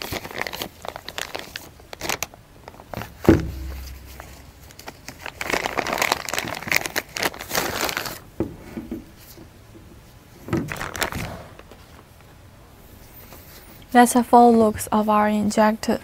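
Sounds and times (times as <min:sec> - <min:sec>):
plastic bag crinkling: 0:00.0 - 0:08.3, 0:10.7 - 0:12.0.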